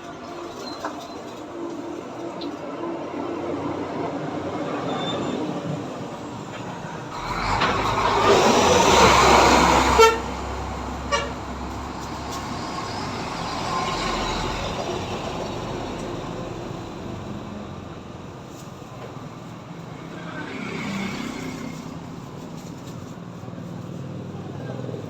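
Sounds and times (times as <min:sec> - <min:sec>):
motor vehicle passing: 0:07.1 - 0:17.8, 0:19.4 - 0:25.0
short horn toots: 0:09.8 - 0:10.4, 0:11.1 - 0:11.4.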